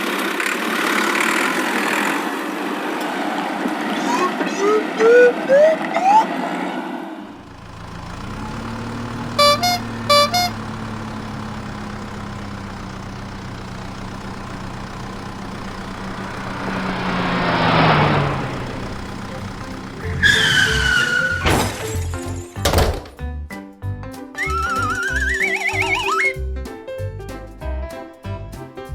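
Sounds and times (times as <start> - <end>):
vehicle whoosh passing: 7.4 - 21.2
horn honks: 7.4 - 21.4, 24.4 - 26.3
cartoon engine drone: 8.2 - 12.7, 24.4 - 26.4.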